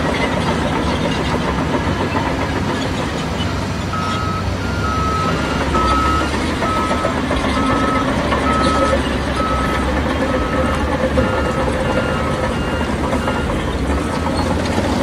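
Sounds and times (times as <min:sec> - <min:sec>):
diesel engine rumbling: 0:00.0 - 0:15.0
reversing alarm beeping: 0:03.9 - 0:14.7.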